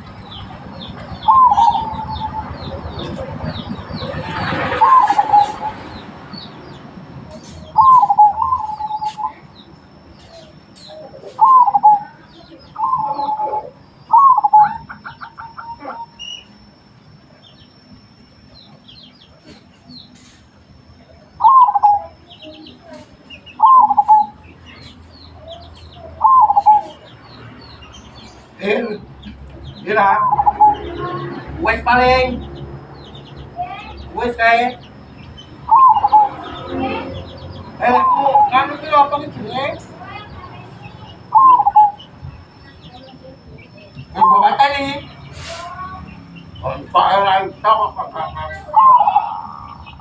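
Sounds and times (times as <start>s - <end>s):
doves cooing: 0.0s - 6.5s, 7.3s - 9.6s, 10.2s - 16.4s, 21.3s - 27.4s, 29.1s - 32.2s, 35.5s - 45.8s, 46.9s - 50.0s
small birds chirping: 0.0s - 50.0s.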